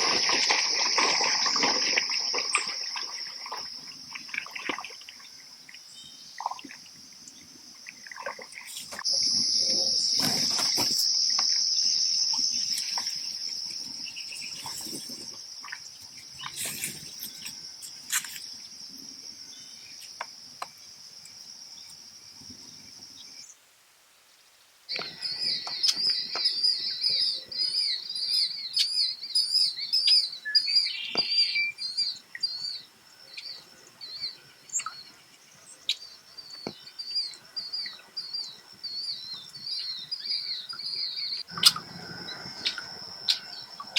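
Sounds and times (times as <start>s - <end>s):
birds trilling and chirping: 24.9s - 43.9s.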